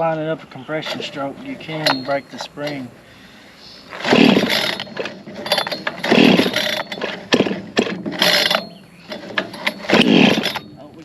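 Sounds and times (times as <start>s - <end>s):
chainsaw recoil starter pulls: 3.9s - 10.7s
engine turning over: 3.9s - 10.7s.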